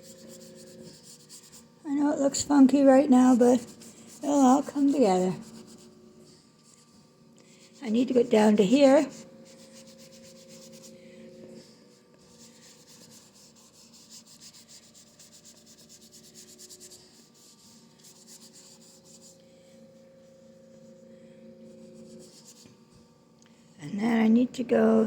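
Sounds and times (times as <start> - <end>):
paintbrush scrubbing on canvas: 0.0 - 1.7, 2.3 - 6.0, 6.6 - 19.4
faint steady hum: 0.0 - 25.0.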